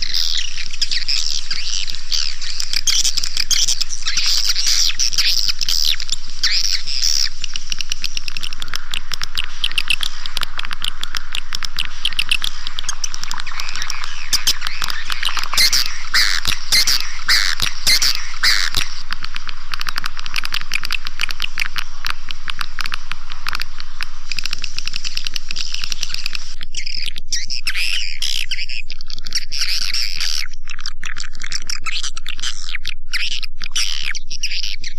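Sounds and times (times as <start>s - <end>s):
swiftlet chirps and clicks: 0.0s - 26.7s.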